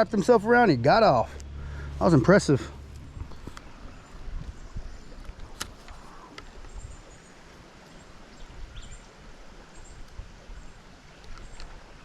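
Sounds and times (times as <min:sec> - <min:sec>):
uneven low rumble: 0:00.0 - 0:05.6.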